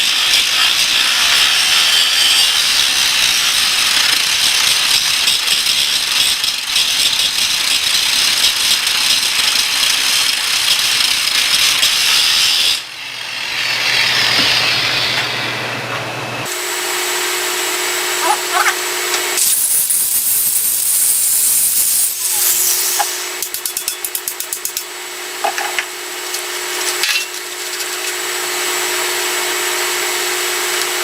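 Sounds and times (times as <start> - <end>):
cutting torch rushing hiss: 0.0 - 4.7, 19.1 - 23.5.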